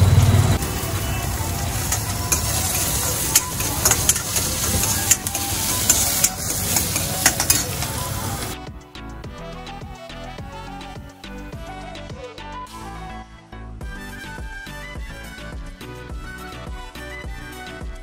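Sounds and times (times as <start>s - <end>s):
background music: 0.0s - 18.0s
vegetables sizzling in a wok: 0.3s - 8.6s
ladle scraping a wok: 1.7s - 8.6s.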